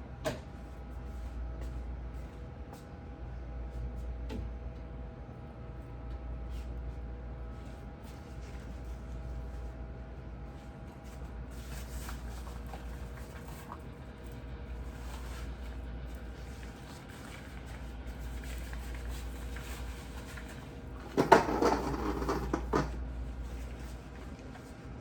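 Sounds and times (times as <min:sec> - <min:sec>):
objects clattering and knocking: 0:18.4 - 0:23.0.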